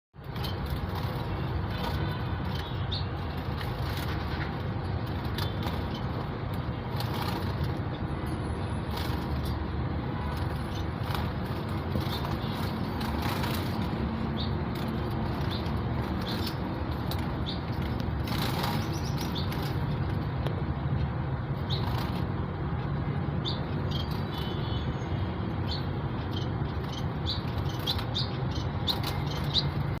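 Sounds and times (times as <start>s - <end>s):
finches chirping: 0.3s - 4.2s, 10.6s - 20.1s, 23.4s - 24.6s, 25.6s - 30.0s
wing flutters: 10.2s - 20.2s.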